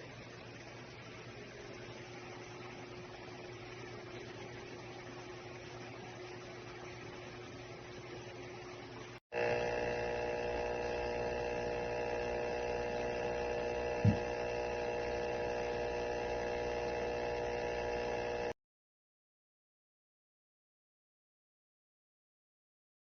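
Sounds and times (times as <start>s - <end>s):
humidifier electrical hum: 0.0s - 18.6s
short thump: 14.0s - 14.3s.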